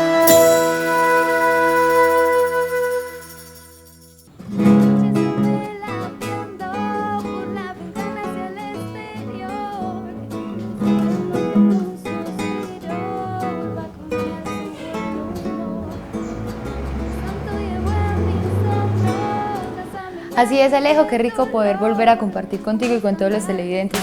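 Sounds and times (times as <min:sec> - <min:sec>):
strummed acoustic guitar: 0:00.0 - 0:03.4, 0:04.2 - 0:24.0
melody line: 0:00.0 - 0:04.0.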